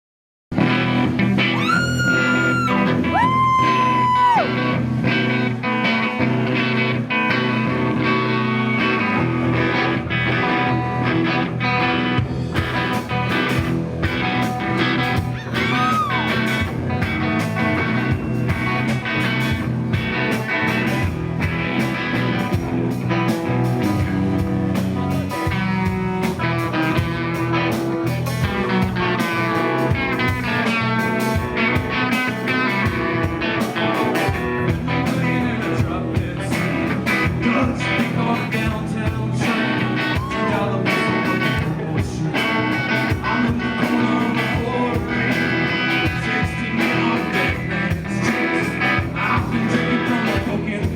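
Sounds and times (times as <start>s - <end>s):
drums: 0.5s - 50.9s
electric guitar: 0.5s - 50.9s
person singing: 1.5s - 4.6s, 15.3s - 16.6s, 33.6s - 50.9s.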